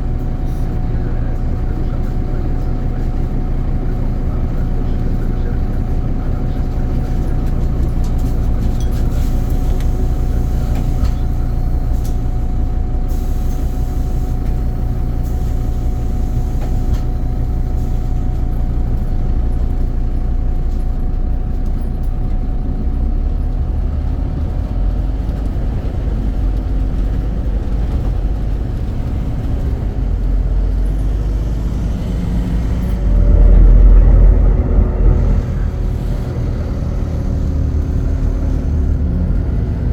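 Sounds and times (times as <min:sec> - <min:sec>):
bus diesel engine rumbling: 0:00.0 - 0:39.9
thin steady whine: 0:31.2 - 0:38.7.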